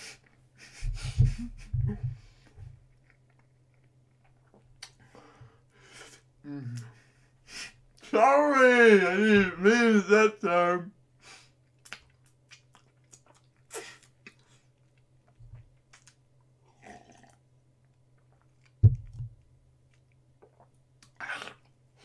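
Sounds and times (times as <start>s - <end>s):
wet chewing smacks: 11.7s - 16.2s.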